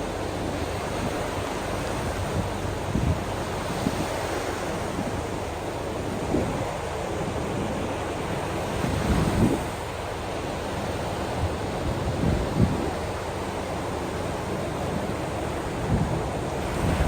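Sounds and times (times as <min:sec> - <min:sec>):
ocean waves washing on shore: 0:00.0 - 0:17.0
wind buffeting microphone: 0:00.3 - 0:05.4, 0:08.7 - 0:10.0, 0:11.4 - 0:13.4, 0:15.0 - 0:17.0.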